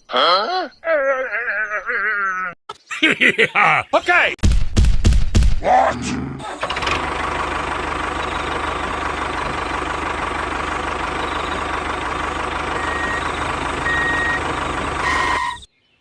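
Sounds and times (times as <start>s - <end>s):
tractor engine running: 6.4s - 15.7s
short high beeps: 12.8s - 15.7s.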